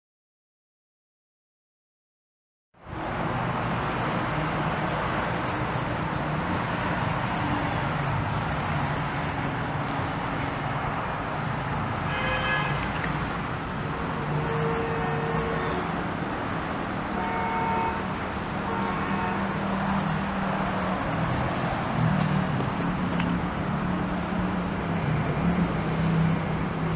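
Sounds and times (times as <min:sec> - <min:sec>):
vehicle engine and road noise: 0:02.8 - 0:26.9
horn-like pitched tone: 0:13.8 - 0:16.3, 0:17.1 - 0:18.0.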